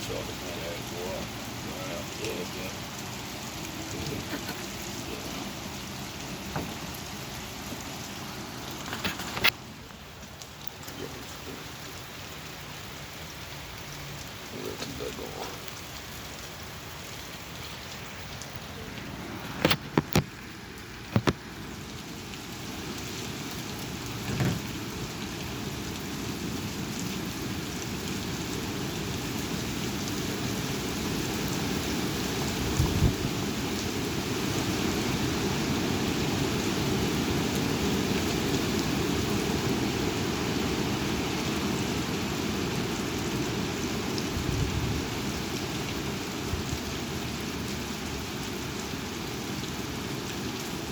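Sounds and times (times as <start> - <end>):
heavy rain: 0.0 - 50.9
strong wind: 32.4 - 42.8, 43.7 - 45.3.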